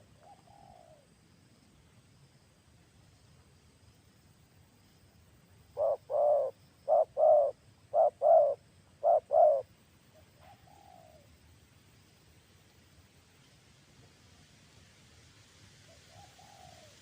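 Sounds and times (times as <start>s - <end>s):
dove cooing: 0.0s - 1.0s, 5.8s - 9.7s, 10.4s - 11.3s, 16.1s - 17.0s.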